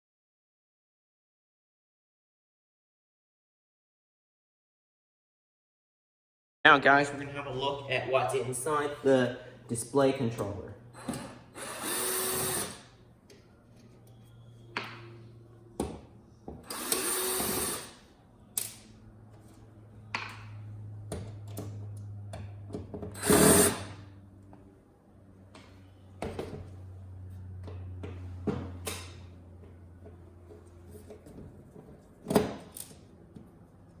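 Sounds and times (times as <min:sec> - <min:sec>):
power screwdriver running: 0:11.0 - 0:12.9, 0:16.7 - 0:18.0, 0:23.2 - 0:24.0.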